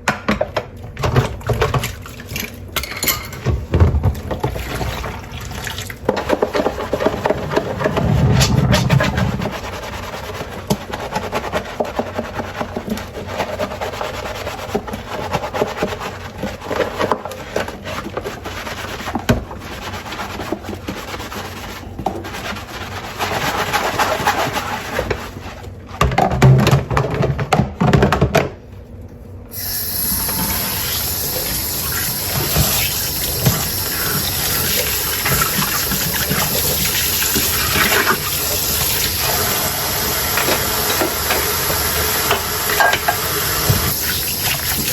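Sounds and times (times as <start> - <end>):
crockery clinking in water: 2.8 - 3.4
tap running: 29.5 - 44.9.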